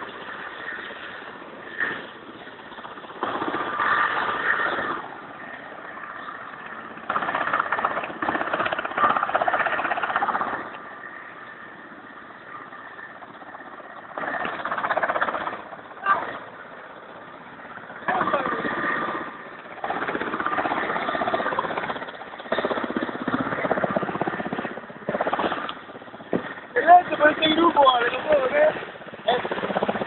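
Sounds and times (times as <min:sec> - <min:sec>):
faint steady whine: 0:00.0 - 0:30.0
helicopter engines and rotor: 0:00.0 - 0:30.0.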